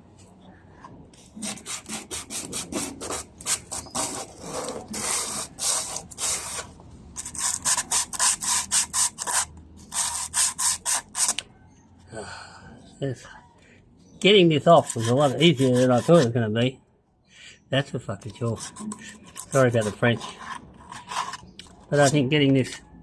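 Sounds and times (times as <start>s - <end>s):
sandpaper rubbing strokes: 1.2s - 11.4s, 14.8s - 16.4s, 18.3s - 22.2s.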